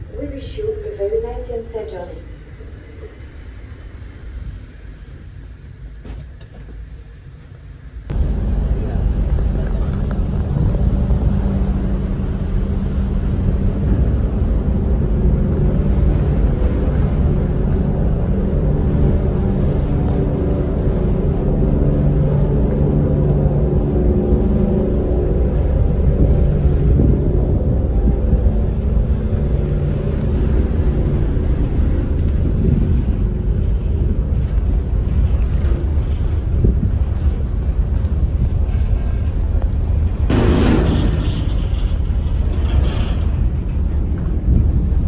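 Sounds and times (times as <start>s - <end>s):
ship engines droning: 0.0s - 45.0s.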